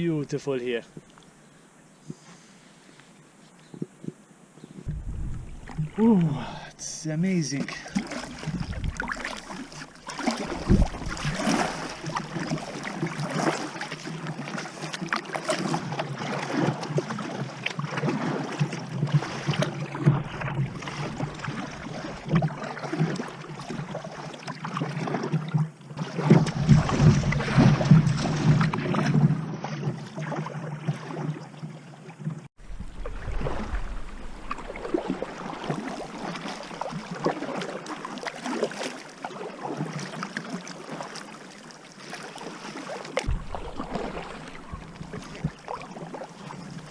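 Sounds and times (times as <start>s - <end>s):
water splashing around kayak: 3.8s - 46.9s
wind on microphone: 4.8s - 6.0s, 8.4s - 9.3s, 10.4s - 11.7s, 43.3s - 45.7s.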